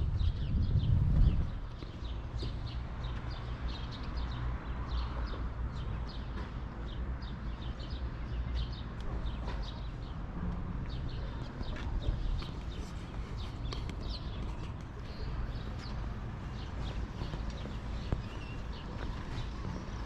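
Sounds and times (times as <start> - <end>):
steady low rumble: 0.0 - 3.4
small birds chirping: 10.9 - 20.0.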